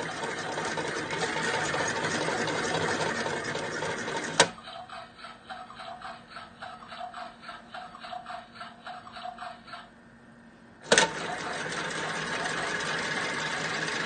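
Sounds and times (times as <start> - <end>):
small toy motor running: 0.0 - 4.4, 10.9 - 14.0.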